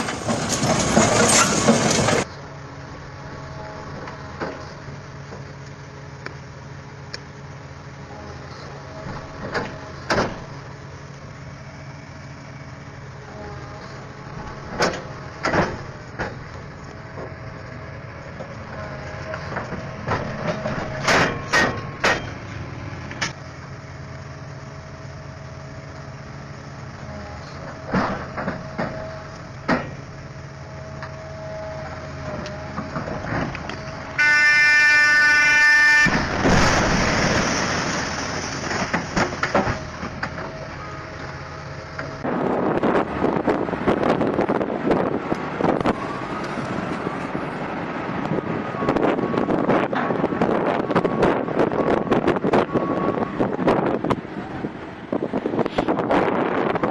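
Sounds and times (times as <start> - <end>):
heavy machinery engine running: 0.0 - 56.9
metallic knocks and clanks: 19.5 - 22.4
horn: 34.2 - 36.2.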